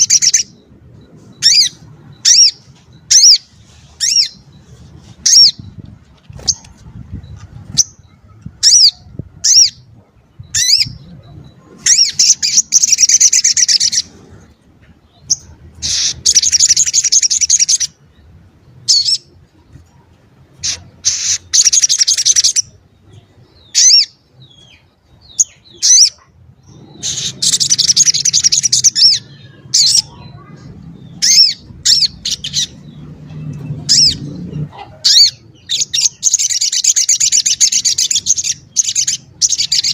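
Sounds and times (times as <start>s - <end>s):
bird trilled phrases: 25.3s - 32.8s.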